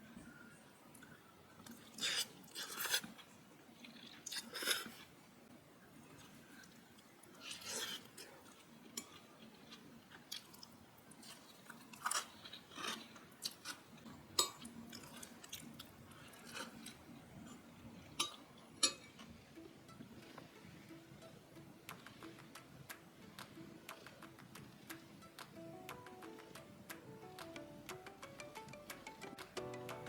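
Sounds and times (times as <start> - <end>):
chewing with crunches: 0.9 - 5.2, 6.0 - 19.4.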